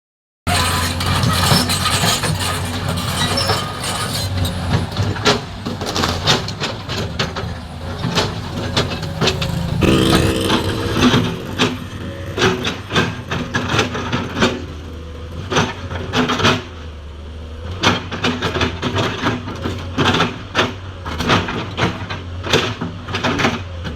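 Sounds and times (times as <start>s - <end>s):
pitched whine: 9.8s - 13.3s.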